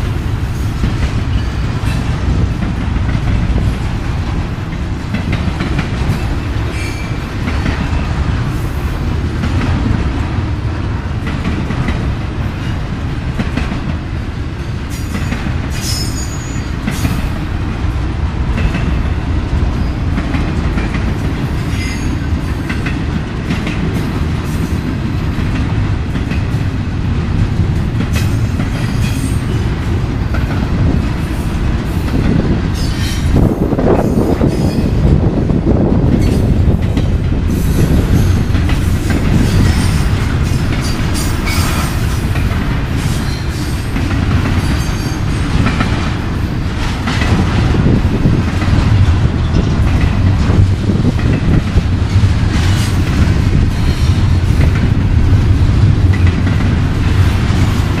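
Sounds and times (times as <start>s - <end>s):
steel wheels rumbling on rail: 0.0s - 58.0s.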